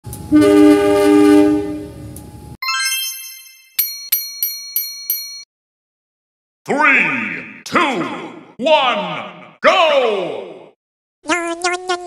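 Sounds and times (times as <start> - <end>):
train horn blast: 0.3 - 2.1
glittering chime run: 2.6 - 5.4
bright bell dings: 2.6 - 5.5.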